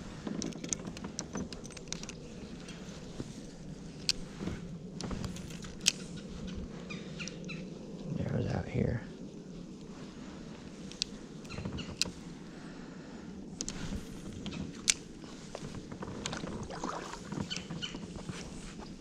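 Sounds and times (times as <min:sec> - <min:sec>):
water sloshing with paddle strokes: 0:16.0 - 0:18.3.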